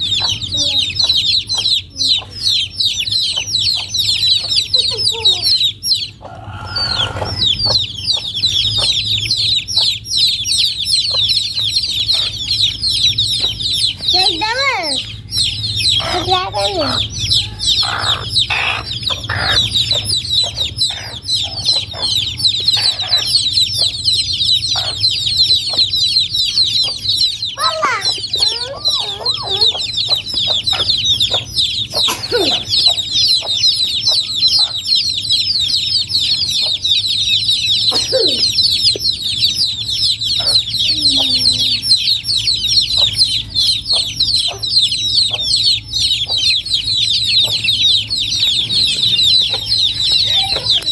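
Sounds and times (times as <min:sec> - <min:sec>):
chicks peeping: 0:00.0 - 0:50.9
hen clucking: 0:00.0 - 0:50.9.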